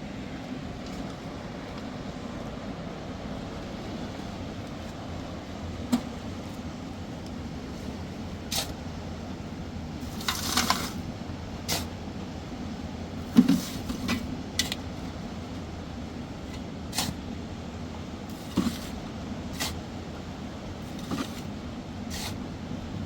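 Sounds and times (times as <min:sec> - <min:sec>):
low background rumble: 0:00.0 - 0:23.0
knocks and scrapes: 0:10.1 - 0:11.0, 0:13.4 - 0:14.2, 0:18.4 - 0:19.0, 0:20.9 - 0:21.5.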